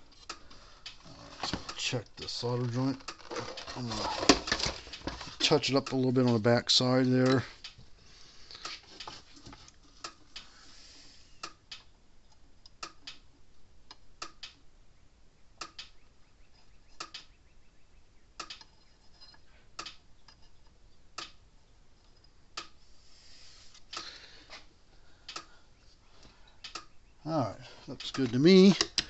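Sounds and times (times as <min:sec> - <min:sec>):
faint background hiss: 0:00.0 - 0:29.0
sharp clicks: 0:11.4 - 0:13.3, 0:13.9 - 0:14.6, 0:15.6 - 0:16.2, 0:16.9 - 0:17.4, 0:18.4 - 0:18.7, 0:19.8 - 0:20.4, 0:21.2 - 0:21.4, 0:25.3 - 0:25.6, 0:26.2 - 0:27.0, 0:27.9 - 0:29.0.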